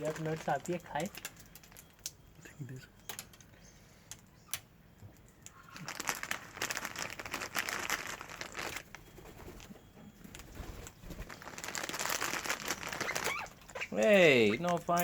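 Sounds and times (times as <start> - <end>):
packet crinkling: 0.0 - 2.1, 5.7 - 9.0, 11.2 - 13.9.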